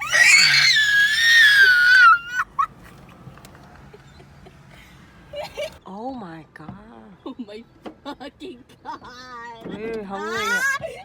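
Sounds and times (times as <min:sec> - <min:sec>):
woman screaming: 0:00.0 - 0:02.6
woman squealing: 0:00.0 - 0:02.7.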